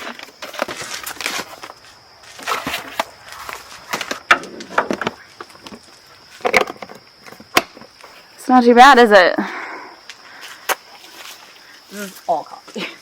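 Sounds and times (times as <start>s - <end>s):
knocks and clunks of handled objects: 0.0s - 8.0s.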